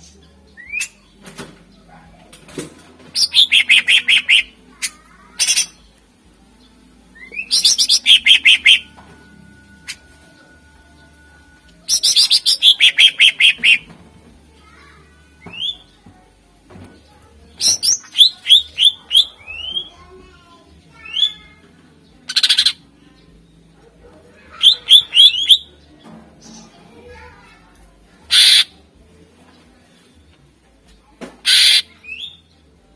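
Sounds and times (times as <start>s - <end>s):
bird singing sharp repeated notes: 3.2s - 4.6s, 7.2s - 8.9s, 11.9s - 13.9s, 17.6s - 20.0s, 24.5s - 25.7s, 28.3s - 28.7s, 31.4s - 32.5s.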